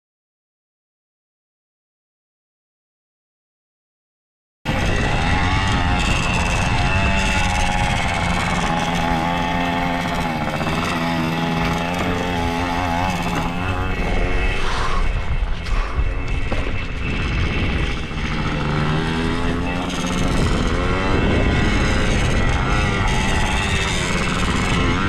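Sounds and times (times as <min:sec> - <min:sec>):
pit bike engine running: 0:04.7 - 0:25.0
rough noise: 0:04.7 - 0:25.0.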